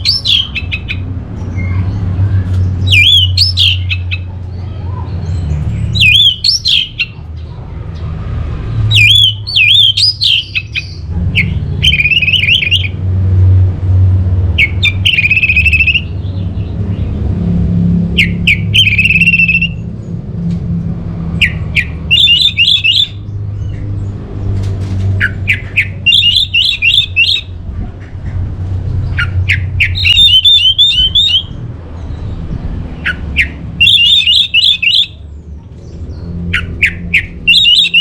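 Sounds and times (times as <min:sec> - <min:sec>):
thrush calling: 0:00.0 - 0:02.1, 0:02.8 - 0:05.1, 0:05.8 - 0:07.2, 0:08.9 - 0:13.0, 0:14.6 - 0:16.4, 0:18.1 - 0:19.8, 0:21.4 - 0:23.2, 0:25.2 - 0:28.4, 0:29.0 - 0:31.6, 0:32.9 - 0:35.2, 0:36.5 - 0:38.0.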